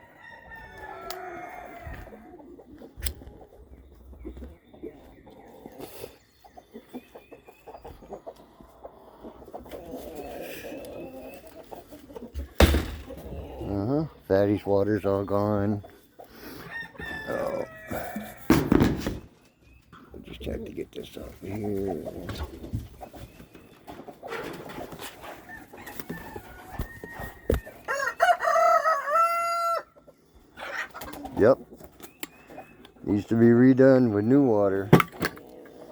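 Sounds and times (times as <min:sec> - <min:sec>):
rooster crowing: 0:00.0 - 0:02.2, 0:27.9 - 0:30.0
chickens clucking: 0:00.0 - 0:35.9
sharp knock: 0:12.6 - 0:13.2.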